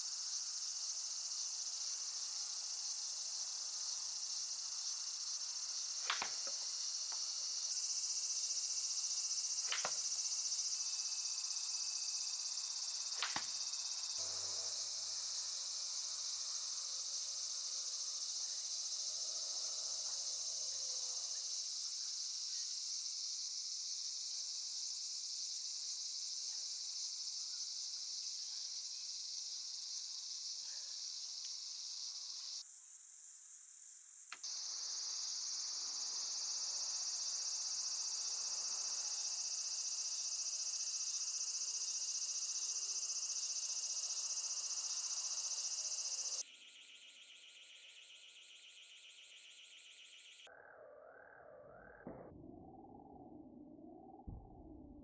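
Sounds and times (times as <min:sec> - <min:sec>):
high-pitched insect chorus: 0:00.0 - 0:52.0
sharp click: 0:06.0 - 0:07.2, 0:09.7 - 0:10.0, 0:13.2 - 0:13.6.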